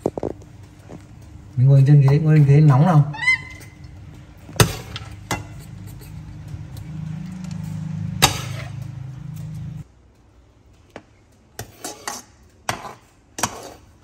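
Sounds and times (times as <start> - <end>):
low steady hum: 0.0 - 11.5.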